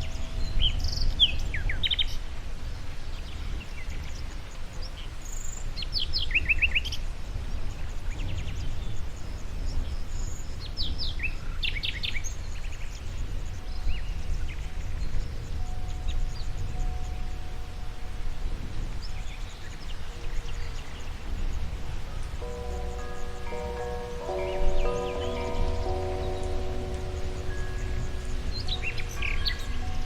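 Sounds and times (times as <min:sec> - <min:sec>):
songbirds chirping: 0:00.0 - 0:30.0
steady low rumble: 0:22.4 - 0:30.0.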